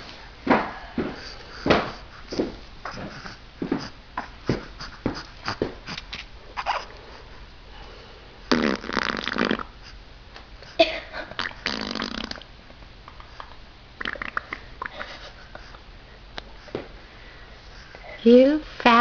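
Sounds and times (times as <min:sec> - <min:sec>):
baby farting: 0:06.6 - 0:06.9, 0:08.5 - 0:09.8, 0:11.4 - 0:12.5, 0:14.0 - 0:15.0.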